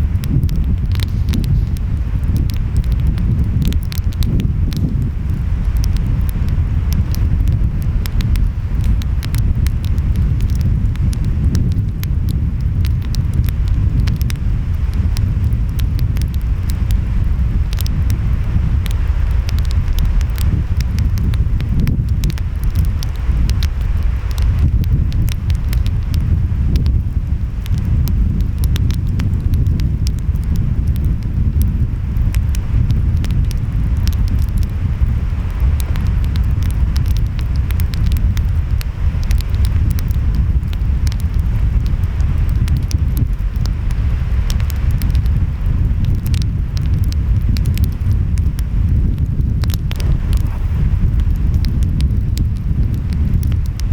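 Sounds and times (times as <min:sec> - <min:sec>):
wind: 0:00.0 - 0:53.9
wood fire crackling and popping: 0:00.0 - 0:53.9
ocean waves rumbling: 0:49.6 - 0:53.9.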